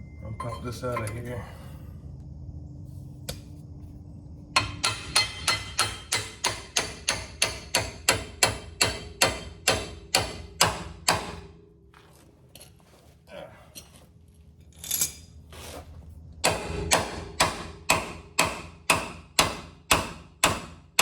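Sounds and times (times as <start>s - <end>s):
hammer striking steel: 4.6s - 11.6s, 16.4s - 21.0s.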